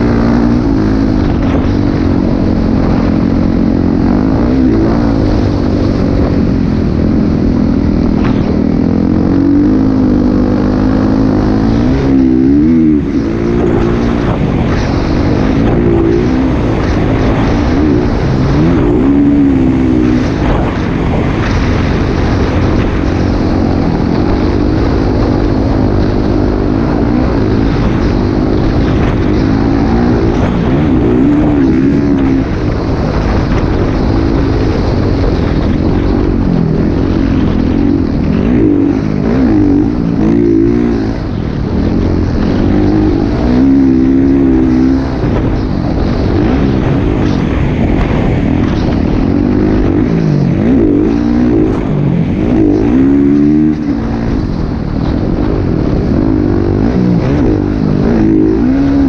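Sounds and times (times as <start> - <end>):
heavy low rumble: 0.0 - 59.0
motorcycle engine revving: 0.0 - 59.0.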